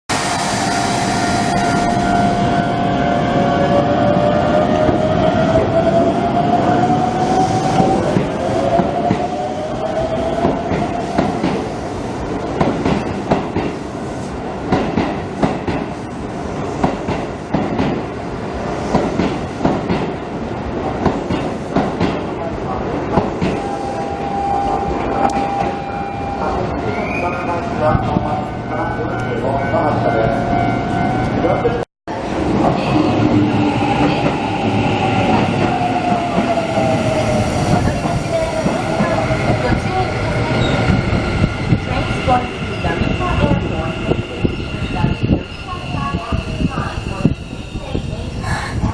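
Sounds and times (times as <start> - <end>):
high whine from train: 0.1 - 48.9
train running rumble: 32.1 - 48.9.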